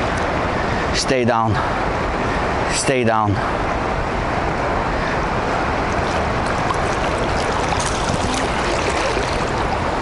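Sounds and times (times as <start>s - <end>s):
river current rushing: 3.5s - 10.0s.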